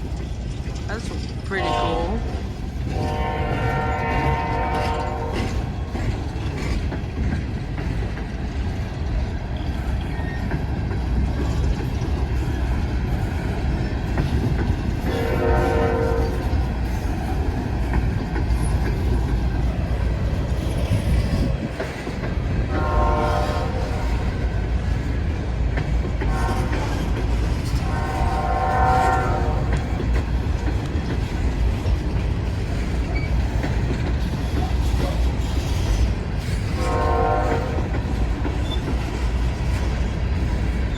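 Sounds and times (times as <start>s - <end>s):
train cars rumbling: 0.0s - 40.9s
wheels clacking on rail joints: 0.0s - 40.9s
train horn blasts: 1.5s - 5.6s, 15.0s - 16.6s, 22.7s - 24.4s, 26.3s - 29.9s, 36.7s - 38.0s.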